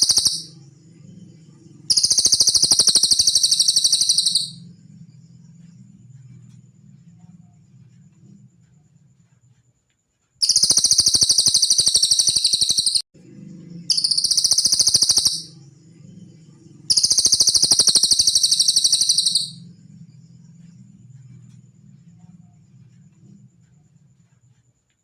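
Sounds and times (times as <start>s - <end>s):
songbird high-pitched trills: 0.0s - 4.8s, 10.4s - 13.0s, 13.9s - 19.8s.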